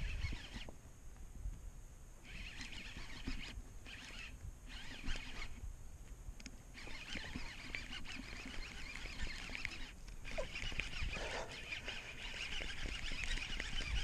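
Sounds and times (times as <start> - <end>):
wind rumble on microphone: 0.0 - 2.0, 10.2 - 14.0
birds calling: 6.8 - 14.0.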